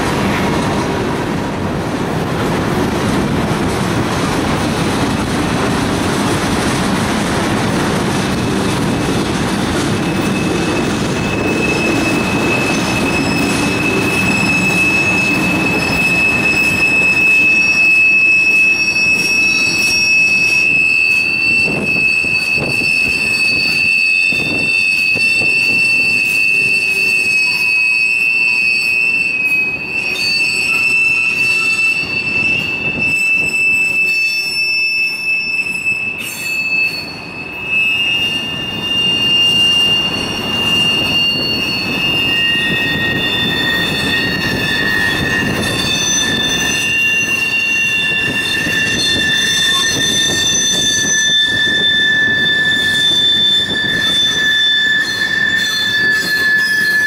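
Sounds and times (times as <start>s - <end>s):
wheels rumbling and clattering on rail: 0.0s - 57.0s
wheels squealing: 8.4s - 57.0s.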